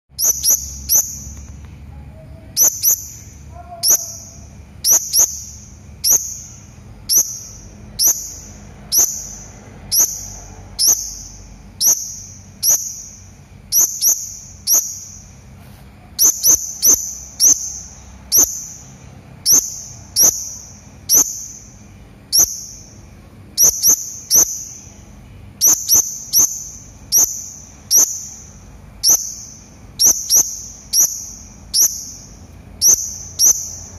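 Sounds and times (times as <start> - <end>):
parrot giving shrill calls: 2.4 - 15.3.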